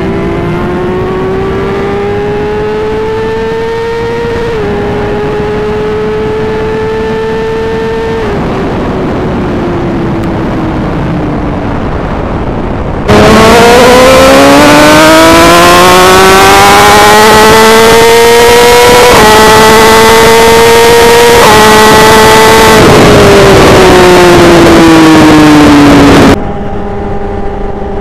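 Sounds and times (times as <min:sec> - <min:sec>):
motorcycle engine revving: 0:00.0 - 0:28.0
rush of noise: 0:07.0 - 0:27.8.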